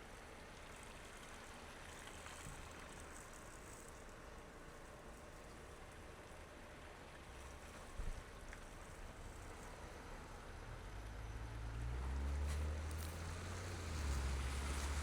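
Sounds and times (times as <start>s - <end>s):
tyre and road noise: 12.2s - 15.0s.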